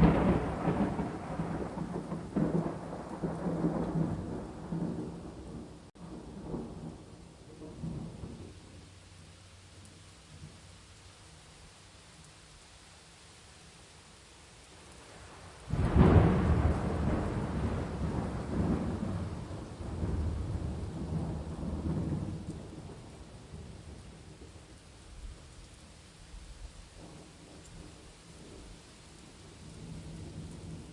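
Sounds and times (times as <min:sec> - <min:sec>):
thunder clap rumbling: 0:00.0 - 0:08.6, 0:15.7 - 0:24.6
steady rain: 0:00.0 - 0:30.9.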